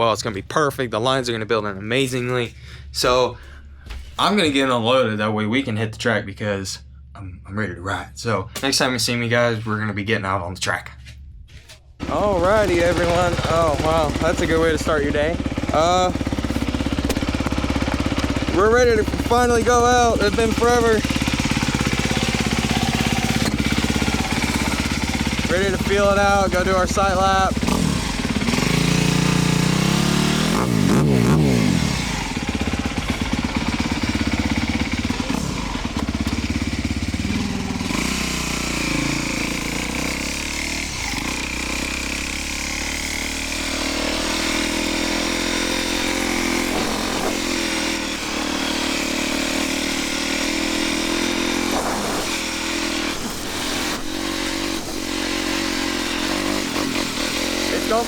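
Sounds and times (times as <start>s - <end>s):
dirt bike engine revving: 12.0s - 58.0s.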